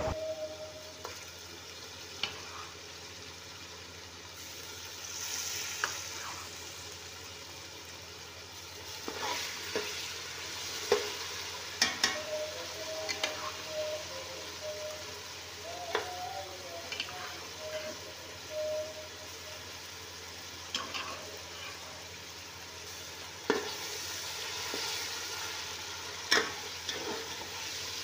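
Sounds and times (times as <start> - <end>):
onions sizzling in oil: 0.0 - 28.0.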